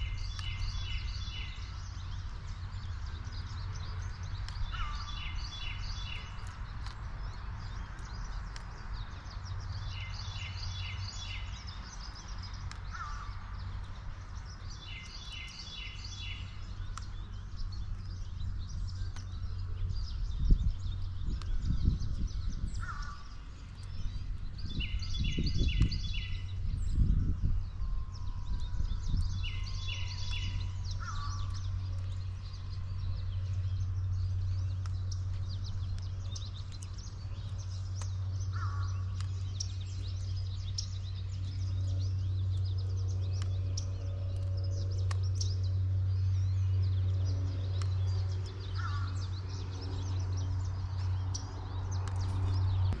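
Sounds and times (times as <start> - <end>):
bird calls: 0.0 - 53.0
steady low hum: 11.1 - 53.0.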